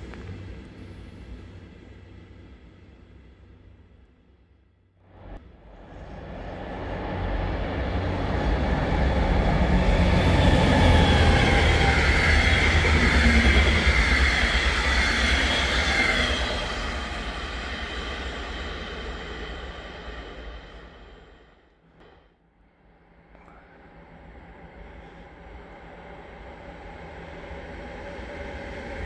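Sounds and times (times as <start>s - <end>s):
diesel train passing by: 5.2s - 21.7s, 23.8s - 29.0s.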